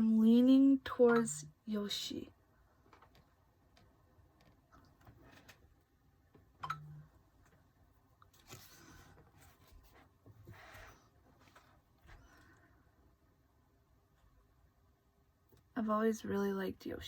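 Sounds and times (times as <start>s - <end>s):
paper and plastic rustling: 8.3s - 11.8s.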